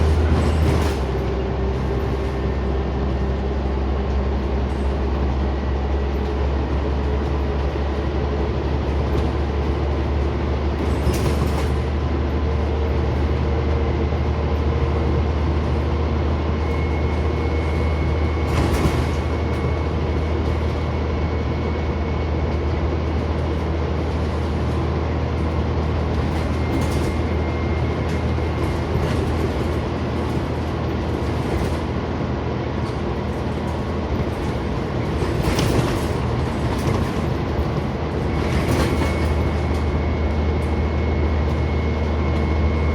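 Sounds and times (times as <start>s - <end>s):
bus body knocks and rattles: 0.0s - 21.7s, 22.5s - 42.9s
bus engine and road drone: 0.0s - 42.9s.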